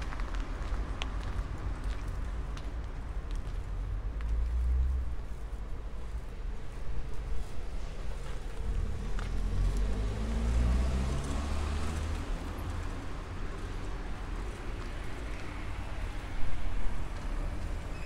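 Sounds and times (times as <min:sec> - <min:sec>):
traffic noise: 0:00.0 - 0:18.0
car driving past: 0:08.7 - 0:13.0.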